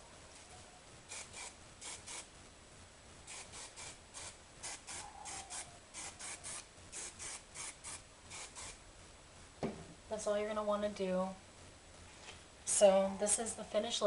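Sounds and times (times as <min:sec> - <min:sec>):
hairspray spritzes: 0:01.1 - 0:02.3, 0:03.3 - 0:08.8.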